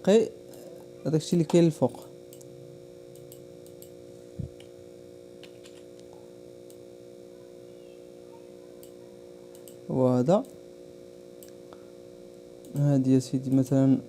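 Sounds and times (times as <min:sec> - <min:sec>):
steady electrical hum: 0:00.0 - 0:14.0
faint clicks: 0:08.8 - 0:09.8.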